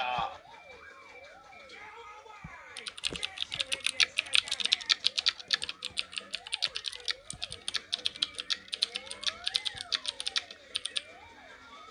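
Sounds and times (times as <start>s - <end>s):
fast sharp clicks: 2.7s - 11.2s.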